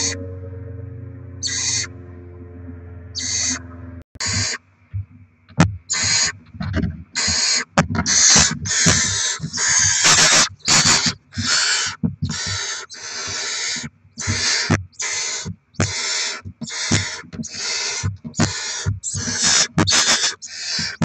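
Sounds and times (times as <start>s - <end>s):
owl chicks hissing calls: 1.4s - 1.9s, 3.2s - 3.6s, 4.2s - 4.6s, 5.9s - 6.4s, 7.2s - 21.0s.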